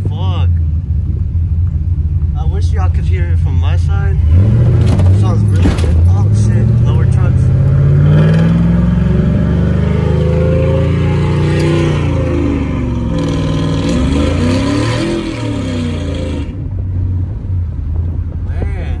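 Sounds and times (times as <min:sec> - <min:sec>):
engine accelerating from inside cab: 0:00.0 - 0:18.5.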